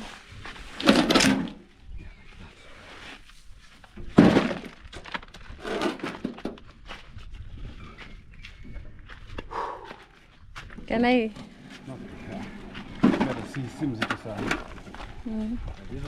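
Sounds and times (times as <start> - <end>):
crushed stone thudding and clattering: 4.0 - 6.7.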